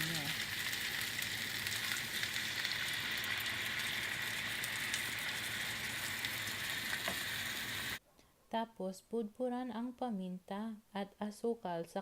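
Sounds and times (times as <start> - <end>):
chicken frying in hot oil: 0.0 - 8.0.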